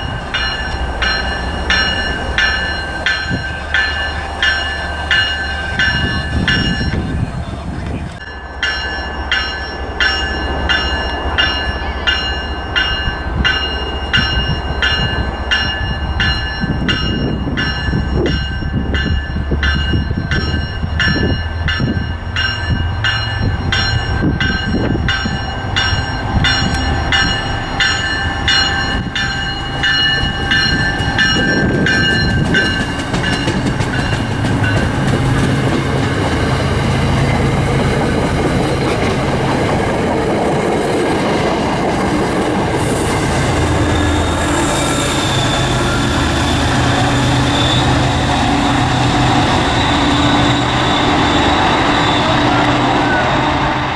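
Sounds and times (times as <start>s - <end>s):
warning bell ringing: 0.0s - 39.6s
train passing: 0.0s - 53.9s.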